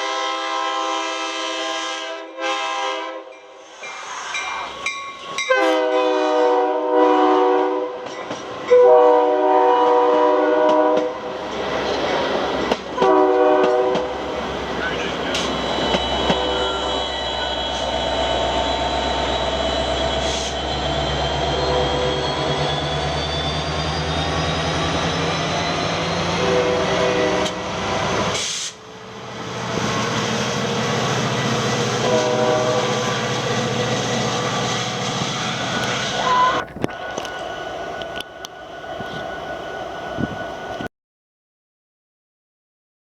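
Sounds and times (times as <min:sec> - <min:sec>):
train horn: 0:00.0 - 0:03.5, 0:05.5 - 0:11.3, 0:13.0 - 0:14.2, 0:15.9 - 0:18.4, 0:26.2 - 0:28.4, 0:31.6 - 0:35.2, 0:35.8 - 0:36.6
train engine drone: 0:00.0 - 0:40.9.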